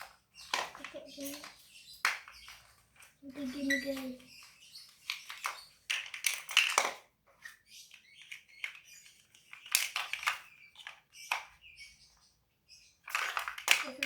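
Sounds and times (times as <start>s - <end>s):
plastic pieces clicking and rattling: 0.0s - 12.2s, 13.0s - 14.0s.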